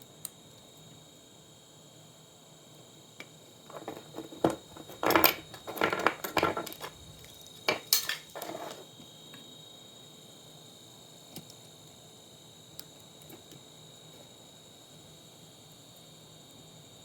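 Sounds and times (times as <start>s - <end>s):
metal and plastic parts clattering: 3.7s - 7.1s, 7.7s - 8.8s.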